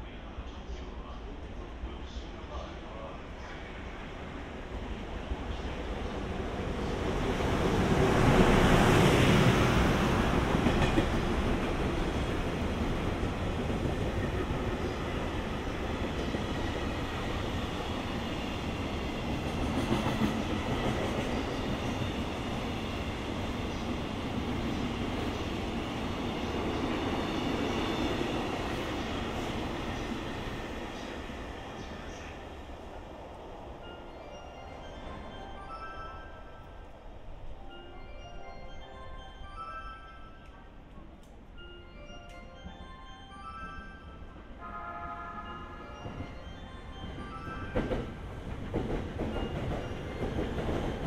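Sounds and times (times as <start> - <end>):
freight train rumbling past: 0.0 - 51.0.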